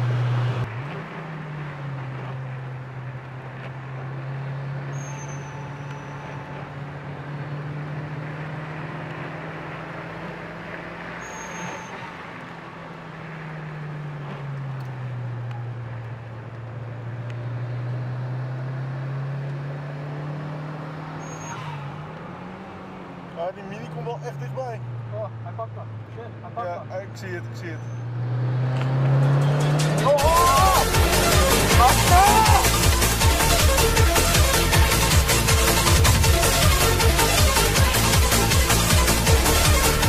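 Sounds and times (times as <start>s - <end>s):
tyre noise on wet road: 0.0s - 40.0s
brief high squeaks: 4.9s - 6.6s, 11.2s - 12.2s, 21.2s - 21.9s
car engine revving from inside cabin: 17.3s - 21.5s, 28.0s - 30.2s.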